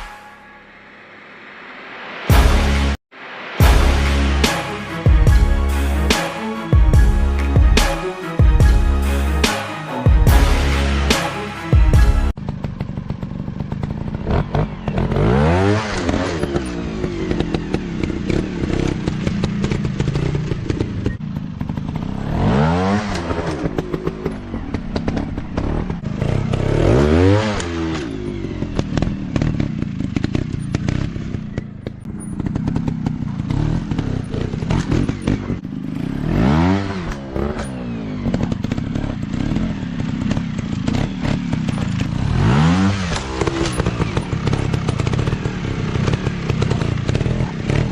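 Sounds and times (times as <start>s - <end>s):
dirt bike engines revving: 13.2s - 47.9s.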